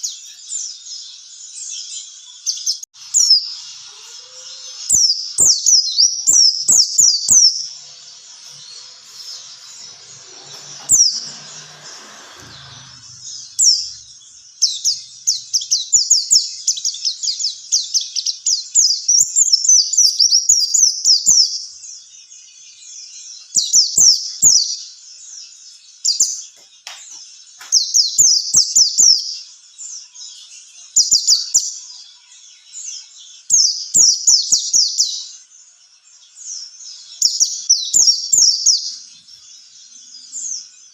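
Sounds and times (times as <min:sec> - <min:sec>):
bird chirping high-pitched song: 0:00.0 - 0:40.9.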